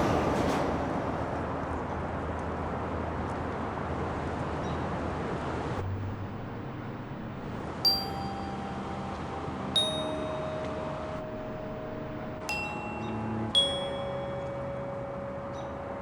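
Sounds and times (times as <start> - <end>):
steady background hiss: 5.8 - 16.0
bell-like chime notes: 7.8 - 16.0.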